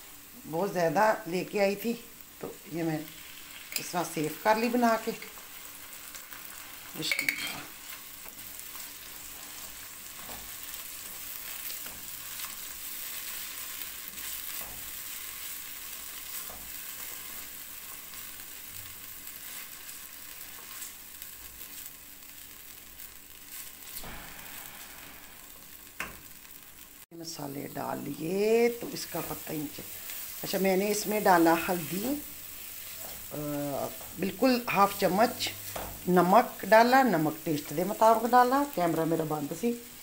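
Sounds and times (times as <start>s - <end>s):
food sizzling in oil: 0.0s - 40.0s
spatula stirring and scraping pan: 3.1s - 26.6s, 27.7s - 38.3s
metal spoon clatter: 7.1s - 7.7s.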